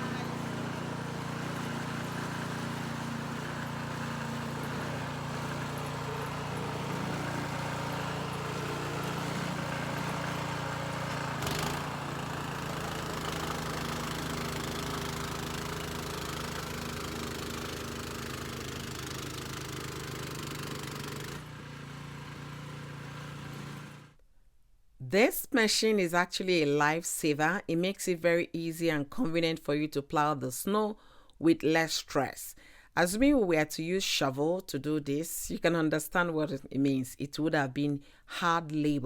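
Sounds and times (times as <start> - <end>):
snowblower engine running: 0.0 - 24.2.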